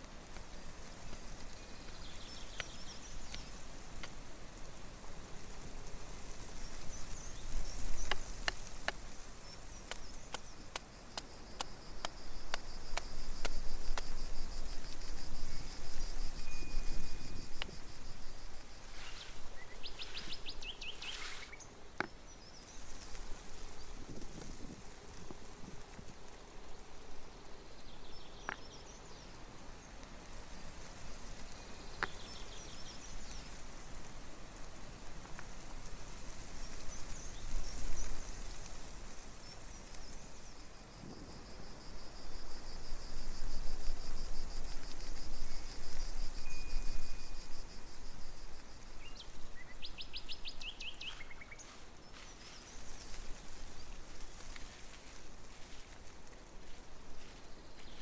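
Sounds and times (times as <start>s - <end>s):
steady outdoor hiss: 0.0s - 58.0s
birds chirping and trilling: 18.9s - 21.7s.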